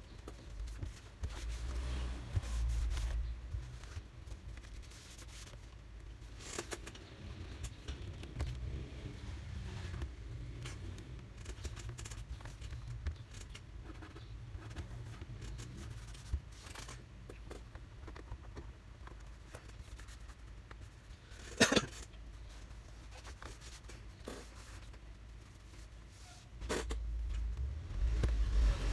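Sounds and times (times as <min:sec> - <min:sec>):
clatter: 0:26.6 - 0:28.9
low steady hum: 0:26.6 - 0:28.9.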